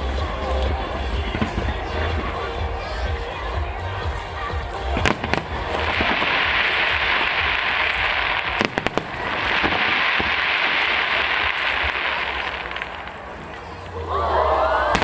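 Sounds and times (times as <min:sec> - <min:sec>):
fireworks crackling: 0:00.0 - 0:14.1.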